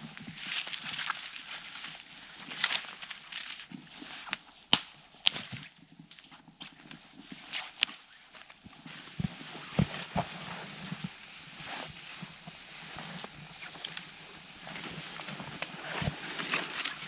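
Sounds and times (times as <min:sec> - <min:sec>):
rustling and crunching: 0:00.0 - 0:17.0
sharp snaps: 0:04.3 - 0:05.5.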